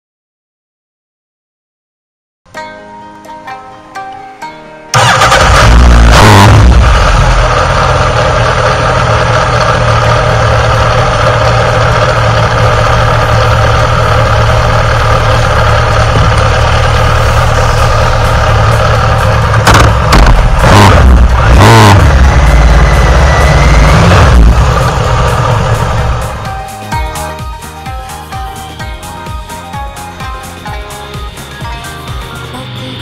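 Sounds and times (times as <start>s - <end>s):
motorcycle engine idling: 6.6s - 33.0s.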